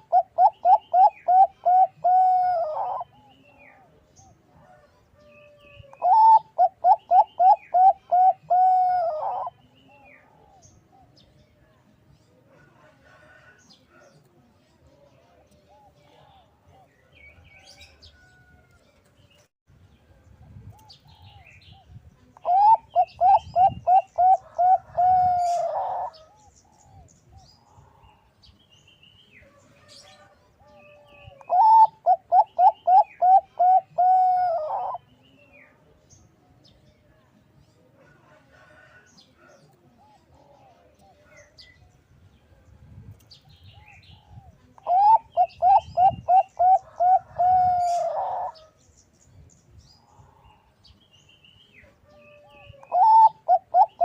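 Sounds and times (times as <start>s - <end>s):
dove cooing: 0.0s - 4.0s, 5.5s - 11.2s, 22.4s - 27.1s, 30.1s - 35.1s, 43.8s - 48.7s, 51.8s - 54.0s.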